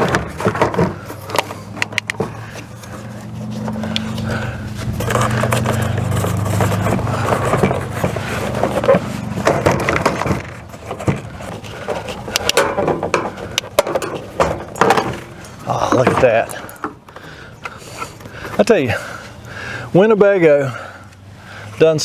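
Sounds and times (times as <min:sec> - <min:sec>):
metal scraping: 0:00.0 - 0:17.0
clunks and knocks: 0:00.0 - 0:17.4.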